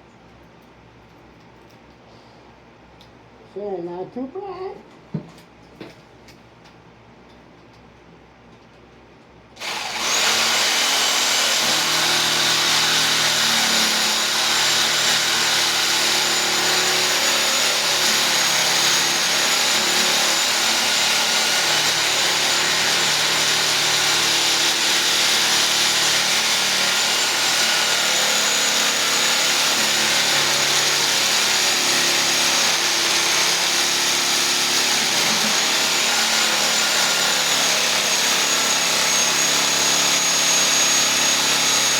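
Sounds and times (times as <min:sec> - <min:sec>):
reciprocating saw cutting wood: 0:09.6 - 0:41.9.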